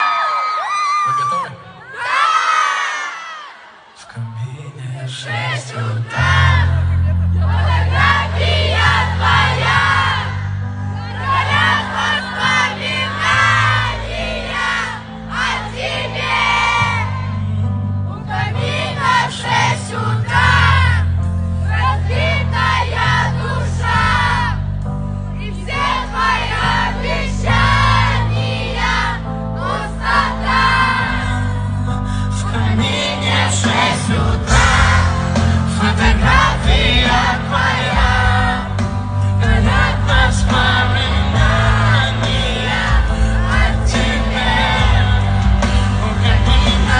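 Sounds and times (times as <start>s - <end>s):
man singing pop song: 4.0s - 7.2s, 31.9s - 46.9s
bass line and beat: 33.7s - 46.9s.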